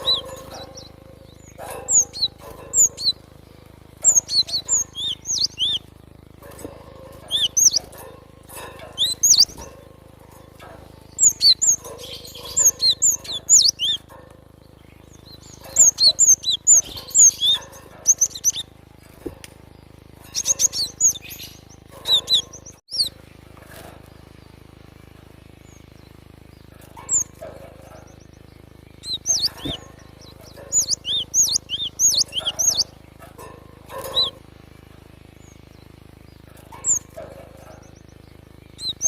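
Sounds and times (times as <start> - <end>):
bird high sweeping chirps: 0.0 - 3.4, 4.0 - 19.4, 20.2 - 24.0, 26.8 - 34.4, 36.6 - 39.0.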